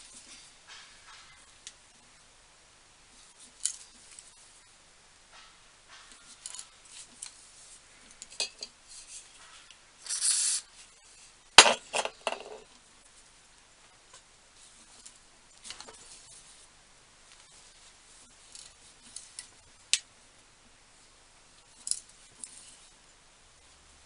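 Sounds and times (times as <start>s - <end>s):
short scraping burst: 10.0s - 10.6s.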